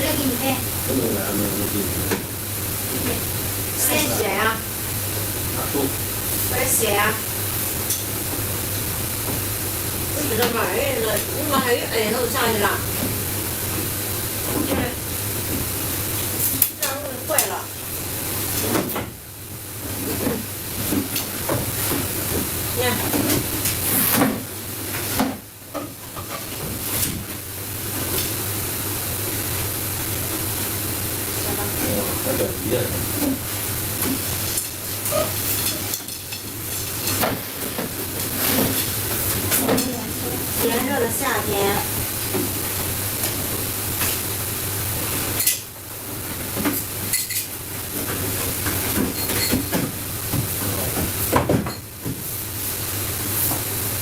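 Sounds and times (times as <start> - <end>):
steady hissing noise: 0.0 - 54.0
dishes and utensils clattering: 49.0 - 49.8.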